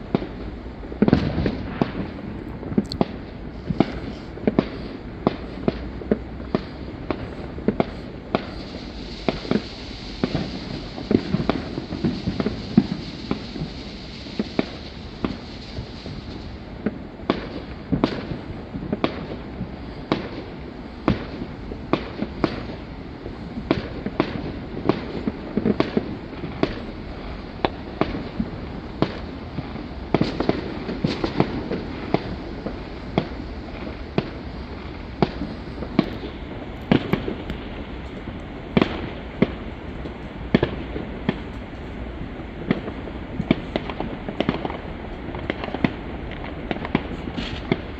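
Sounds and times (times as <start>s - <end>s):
fireworks bangs and cracks: 0.0s - 47.9s
rumble of explosions: 0.0s - 47.9s.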